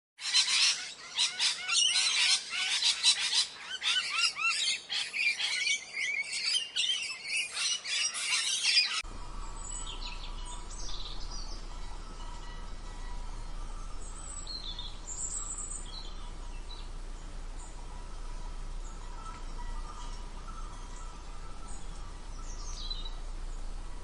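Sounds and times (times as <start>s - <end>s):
small birds chirping: 0.2s - 24.0s
low hum: 9.0s - 24.0s.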